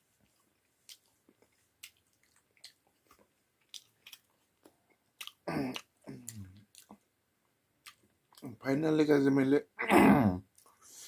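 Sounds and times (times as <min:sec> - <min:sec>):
person chewing food: 0:00.1 - 0:08.6
voiced throat sound: 0:05.4 - 0:06.6, 0:09.8 - 0:10.5.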